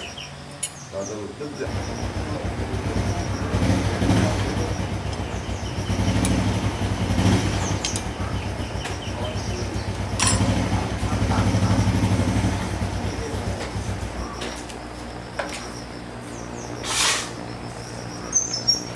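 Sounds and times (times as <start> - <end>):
motorbike engine running: 0.0 - 18.9
sharp clicks: 5.0 - 8.2.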